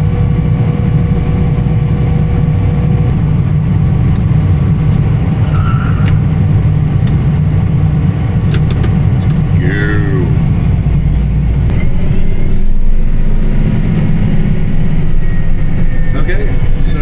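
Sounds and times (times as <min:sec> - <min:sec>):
vehicle engine rumble: 0:00.0 - 0:17.0
faint steady whine: 0:03.1 - 0:11.7.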